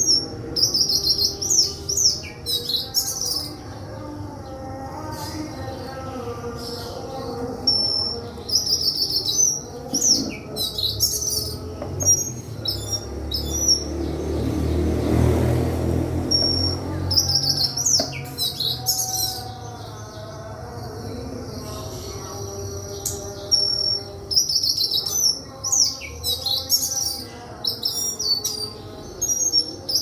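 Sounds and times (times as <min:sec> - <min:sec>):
flycatcher chirping and trilling: 0:04.9 - 0:14.7.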